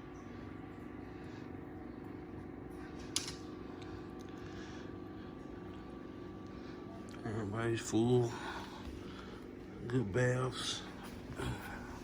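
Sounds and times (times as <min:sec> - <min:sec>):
mechanical fan hum: 0:00.0 - 0:12.0.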